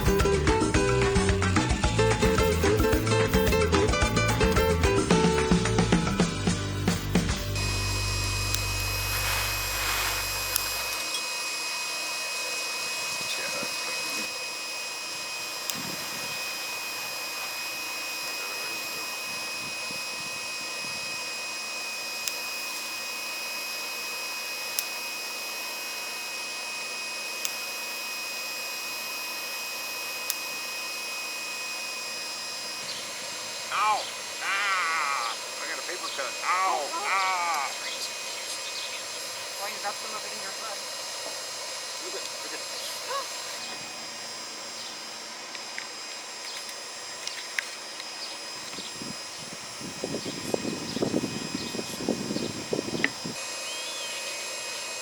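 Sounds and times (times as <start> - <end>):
electric air pump whirring: 0.0 - 55.0.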